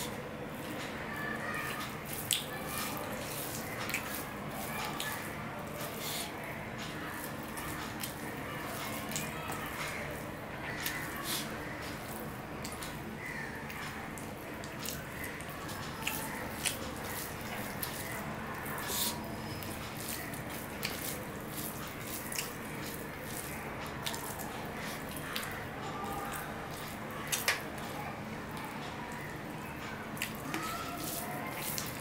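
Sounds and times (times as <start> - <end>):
wet chewing and lip smacks: 14.7 - 25.6, 30.2 - 32.0.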